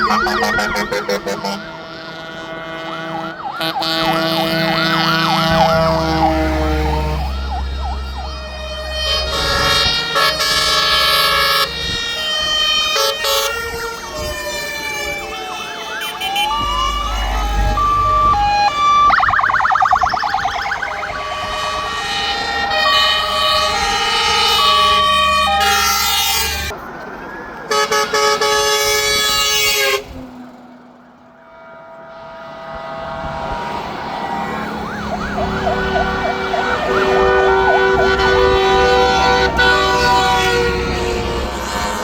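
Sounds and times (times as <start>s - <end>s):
fast yelping siren: 0.0s - 1.9s, 2.7s - 10.2s, 12.4s - 26.4s, 33.5s - 40.8s
fire engine horn blasts: 0.0s - 26.8s, 27.6s - 42.0s
wailing siren: 0.0s - 29.8s, 31.4s - 42.0s
truck engines rumbling: 0.0s - 42.0s.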